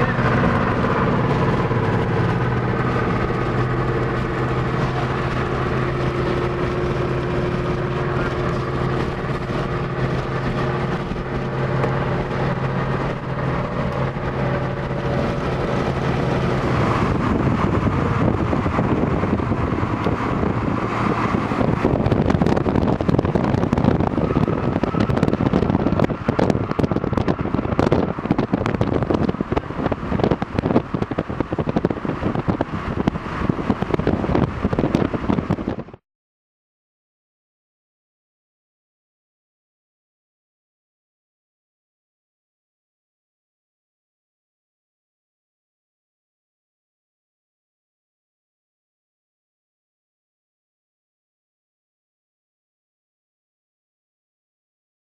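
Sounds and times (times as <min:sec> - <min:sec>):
vehicle engine hum: 0:00.0 - 0:36.0
wind and rain on a car: 0:00.0 - 0:36.0.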